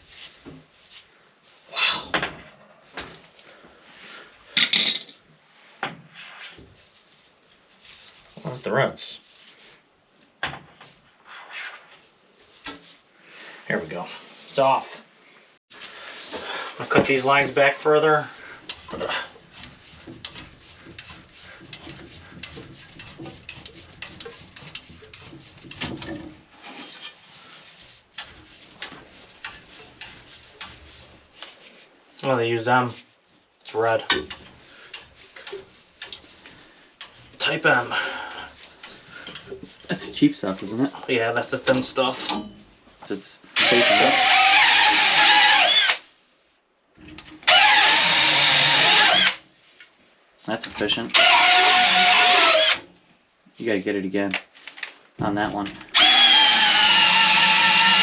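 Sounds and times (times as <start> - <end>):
hand tools clicking on copper pipes: 18.4 - 27.3, 28.1 - 31.5, 34.0 - 40.0
power saw cutting copper pipe: 43.6 - 46.0, 47.4 - 49.4, 51.1 - 52.9, 55.9 - 58.0.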